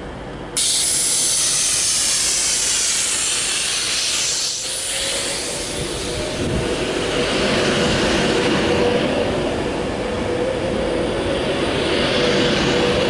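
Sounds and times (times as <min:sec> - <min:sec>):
electric train rushing past: 0:00.1 - 0:13.0
faint rising whine: 0:03.0 - 0:13.0.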